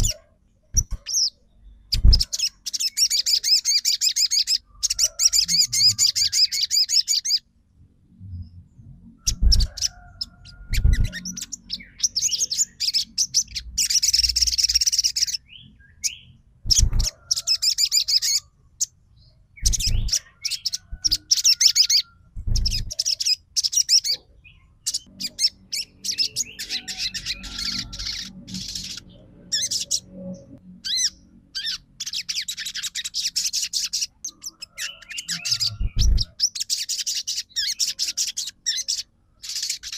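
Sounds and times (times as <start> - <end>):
sunbird trilling chirps: 0.0 - 7.4, 9.2 - 39.9
dull low thumps: 22.4 - 23.0, 35.8 - 36.3.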